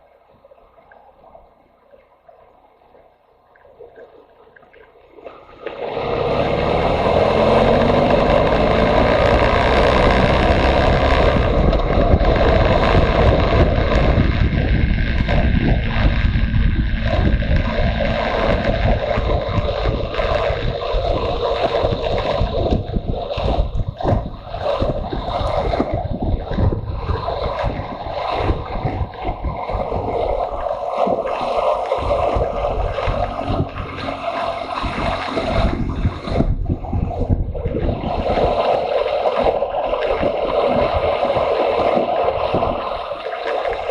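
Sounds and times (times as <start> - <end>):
wind rushing over microphone: 5.5 - 43.9
motorcycle engine running: 5.8 - 23.1.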